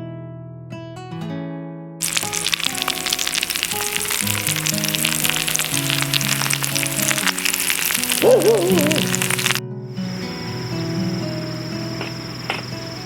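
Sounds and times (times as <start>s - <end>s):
acoustic guitar music: 0.0s - 13.0s
food sizzling in a frying pan: 2.0s - 9.6s.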